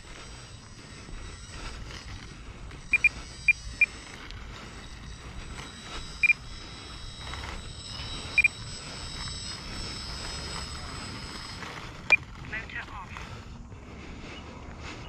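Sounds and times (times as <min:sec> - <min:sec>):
faint high whine: 0:00.0 - 0:15.0
high-pitched electronic beeps: 0:02.9 - 0:04.0, 0:05.2 - 0:11.5.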